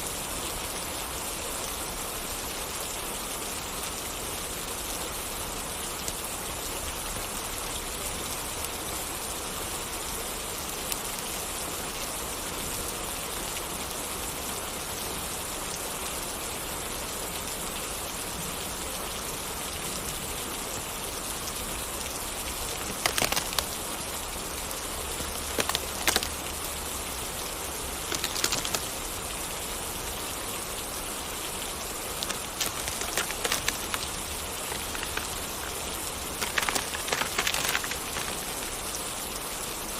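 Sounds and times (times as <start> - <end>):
steady rain falling: 0.0 - 39.9
sharp pops: 22.8 - 23.8, 28.1 - 28.9, 32.2 - 38.6.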